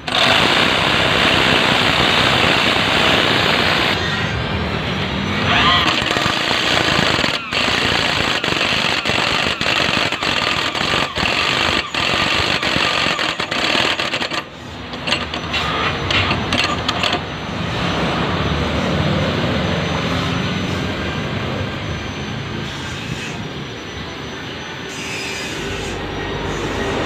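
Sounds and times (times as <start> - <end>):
electric jigsaw cutting plywood: 0.0 - 4.0, 5.8 - 15.3.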